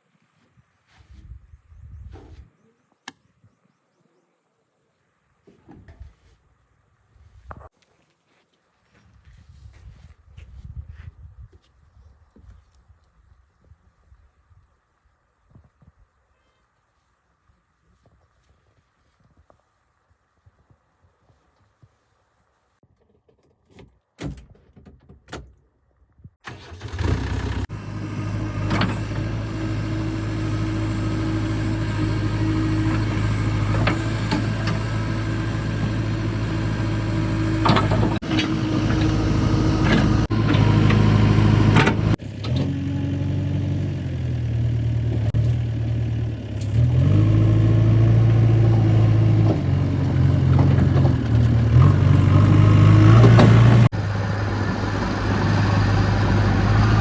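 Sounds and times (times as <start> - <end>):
heavy diesel engine running: 26.5 - 57.0.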